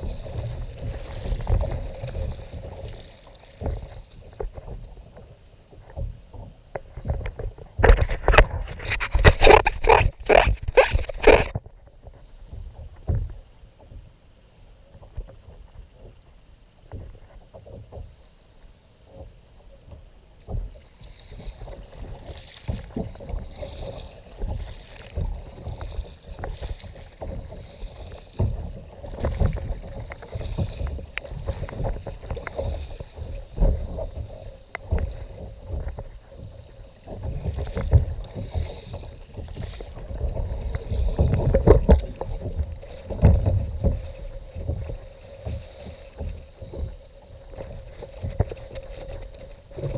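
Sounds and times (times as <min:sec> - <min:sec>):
water lapping against kayak hull: 0:00.0 - 0:49.9.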